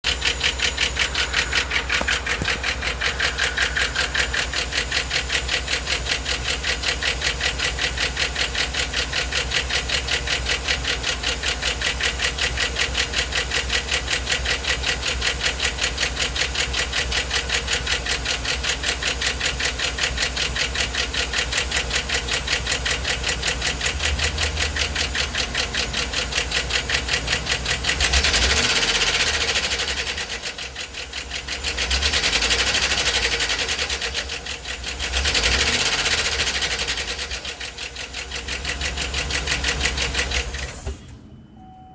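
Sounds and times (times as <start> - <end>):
rhythmic engine knock: 0.0 - 40.9
engine running: 0.0 - 41.8.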